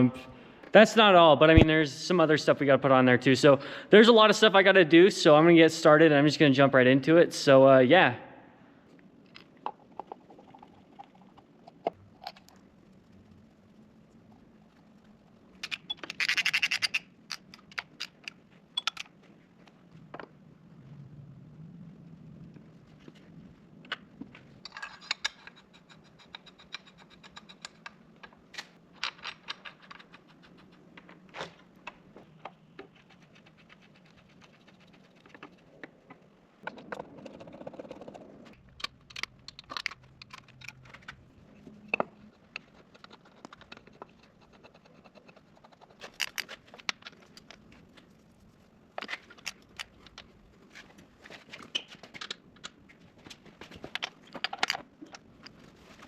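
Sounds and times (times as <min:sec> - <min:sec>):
metal tools and parts clinking: 0:15.6 - 0:19.2, 0:24.6 - 0:30.7, 0:38.6 - 0:41.2.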